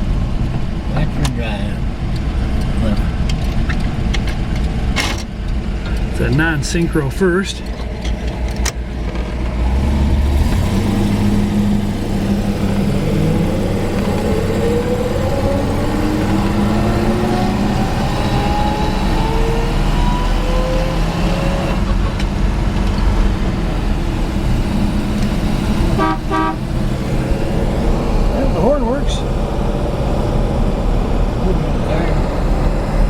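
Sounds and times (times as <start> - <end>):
car engine accelerating: 0.0 - 33.0
rising gear whine: 9.3 - 33.0.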